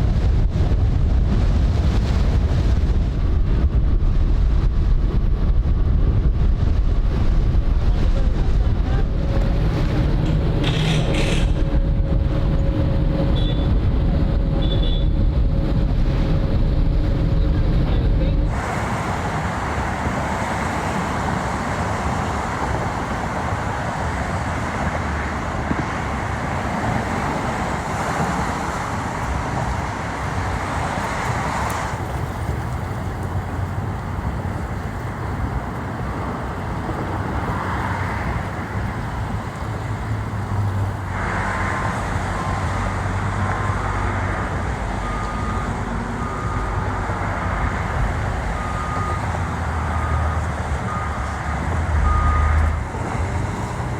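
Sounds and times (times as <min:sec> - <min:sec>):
city traffic rumble: 0:00.0 - 0:53.9
reversing beeper beeps: 0:45.0 - 0:47.0, 0:48.6 - 0:52.8.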